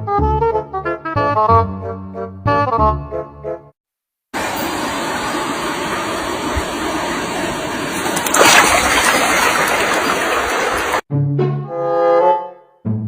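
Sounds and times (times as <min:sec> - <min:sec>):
music: 0:00.0 - 0:03.8, 0:11.1 - 0:13.0
running water rushing: 0:04.4 - 0:11.0.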